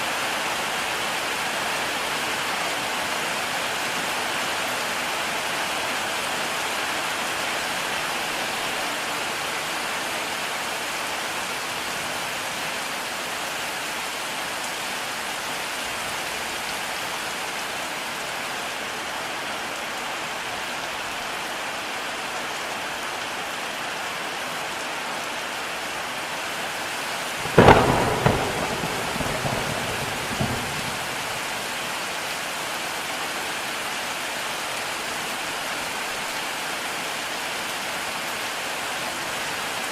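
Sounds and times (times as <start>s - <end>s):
heavy rain falling: 0.0s - 39.9s
thunderclap and rumbling: 27.4s - 31.6s.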